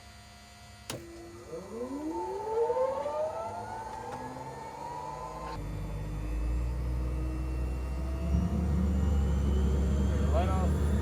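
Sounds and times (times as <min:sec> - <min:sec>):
rising whine: 0:00.7 - 0:11.0
low rumble: 0:04.5 - 0:11.0.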